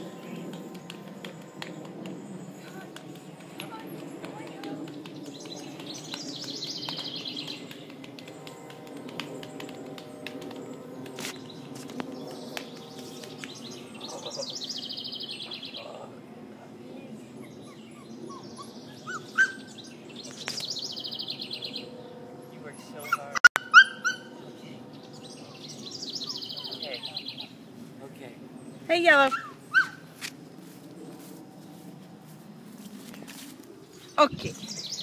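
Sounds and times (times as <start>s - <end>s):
songbird trilling: 25.1s - 27.5s, 34.0s - 35.0s.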